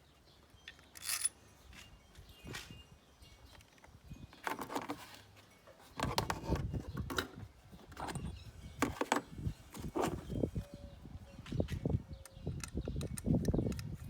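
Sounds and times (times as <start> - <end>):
metal tools clinking and rattling: 0.5 - 6.2.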